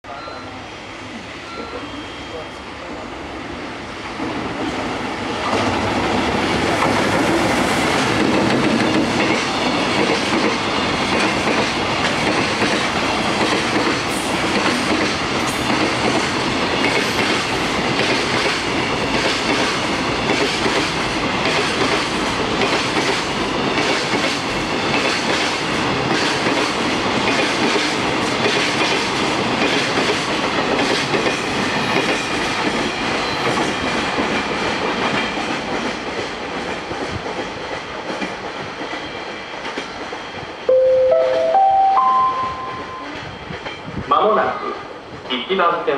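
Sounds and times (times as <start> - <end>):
train wheels clattering over joints: 6.7 - 40.6.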